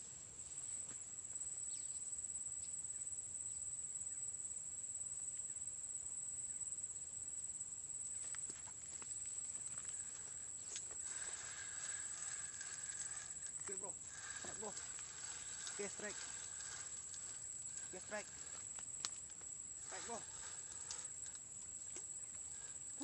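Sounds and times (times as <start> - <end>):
insects droning: 0.0 - 23.0
faint clicks: 8.3 - 23.0.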